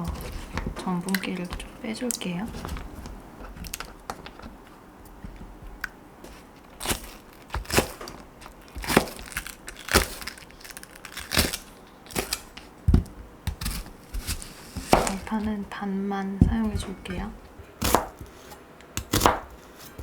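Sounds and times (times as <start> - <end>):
knife cutting on a cutting board: 0.0 - 0.8, 13.5 - 15.6, 16.5 - 20.0.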